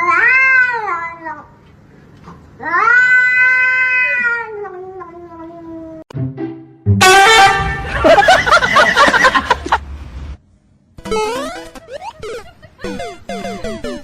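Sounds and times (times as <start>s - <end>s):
cat yowling: 2.6s - 6.0s.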